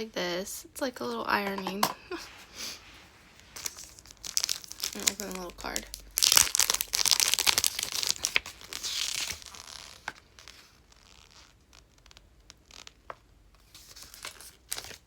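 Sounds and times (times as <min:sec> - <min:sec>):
wrapper rustling: 0:02.3 - 0:15.0
wrapper tearing and crinkling: 0:03.4 - 0:13.1, 0:13.7 - 0:15.0.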